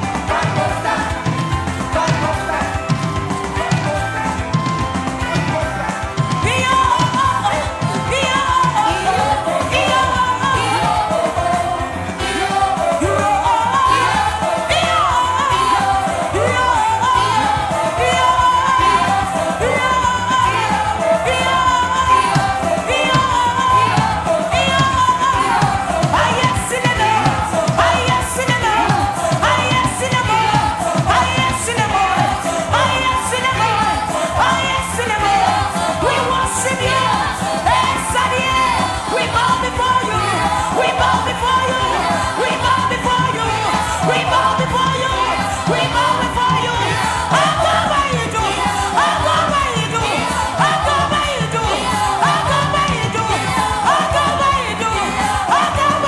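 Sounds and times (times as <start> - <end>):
instrumental backing: 0.0 - 56.0
person singing: 0.0 - 56.0.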